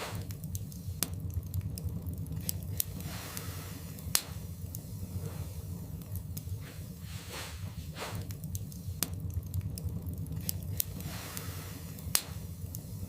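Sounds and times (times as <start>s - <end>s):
fire crackles and pops: 0.0s - 13.0s
wood fire rumbling: 0.0s - 13.0s.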